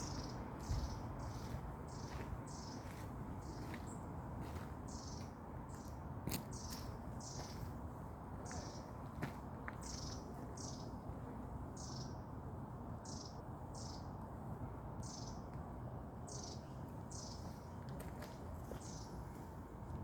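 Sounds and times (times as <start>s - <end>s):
bird chirping: 0.0s - 5.9s.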